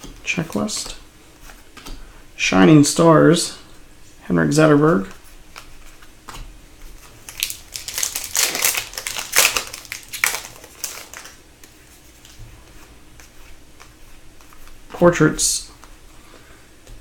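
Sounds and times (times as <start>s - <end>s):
foil wrapper crinkling: 7.2s - 11.4s.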